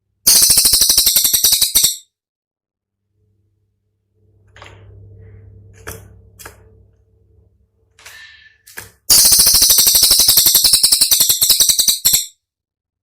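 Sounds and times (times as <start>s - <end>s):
bird fast rattling trill: 0.3s - 2.0s, 9.1s - 12.4s.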